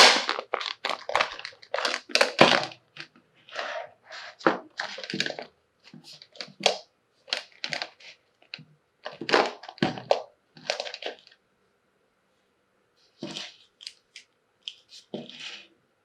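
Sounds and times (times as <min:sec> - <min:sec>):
plastic wrap crinkling: 0:00.0 - 0:11.4.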